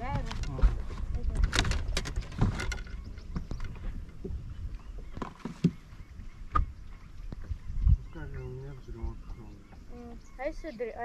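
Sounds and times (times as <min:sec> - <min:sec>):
knocks and clicks on boat: 0:00.0 - 0:07.6.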